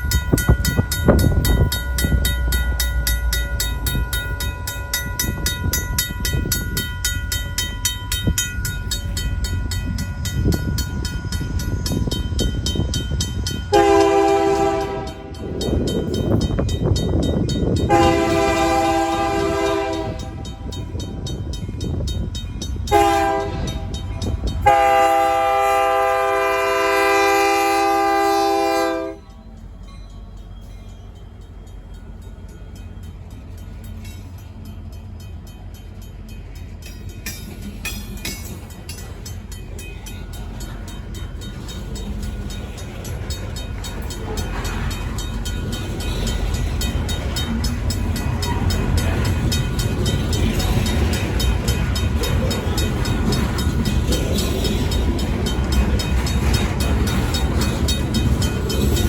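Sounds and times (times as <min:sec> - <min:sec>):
crossing bell ringing: 0:00.0 - 0:59.0
low rumble of train: 0:00.0 - 0:59.0
locomotive horn blast: 0:13.7 - 0:15.4, 0:17.9 - 0:20.6, 0:22.9 - 0:24.0, 0:24.6 - 0:29.4.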